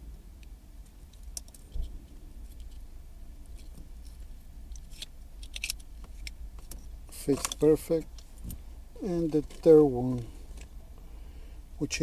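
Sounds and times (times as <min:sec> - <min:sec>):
plastic connectors clicking and rattling: 0:04.7 - 0:07.7.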